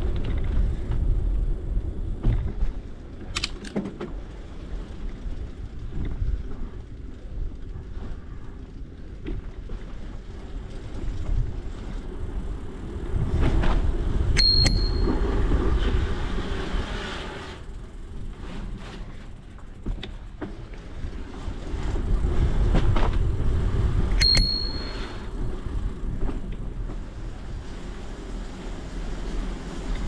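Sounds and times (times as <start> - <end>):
bicycle bell dings: 14.4 - 15.3, 24.2 - 25.3.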